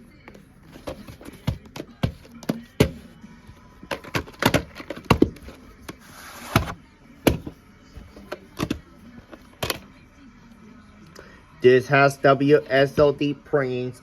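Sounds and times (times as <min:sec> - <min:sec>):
background music: 0:00.0 - 0:14.0
plastic cassette case clicks: 0:03.9 - 0:07.5.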